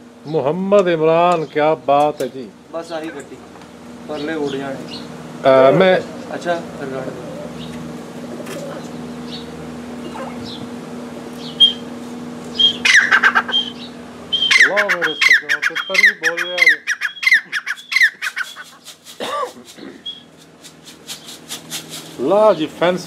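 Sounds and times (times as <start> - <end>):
lower arching bird calls: 7.1 - 21.5
bird squawking: 8.4 - 10.6, 11.4 - 11.9, 12.5 - 21.7.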